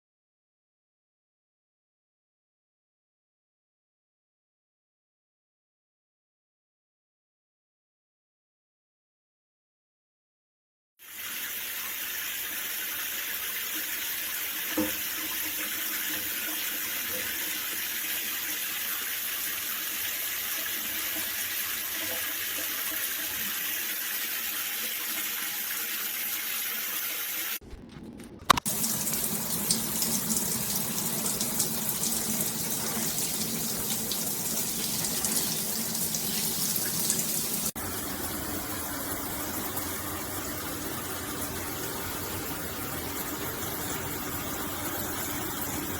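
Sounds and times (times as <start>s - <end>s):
shower spraying water: 11.0s - 27.6s, 28.6s - 45.9s.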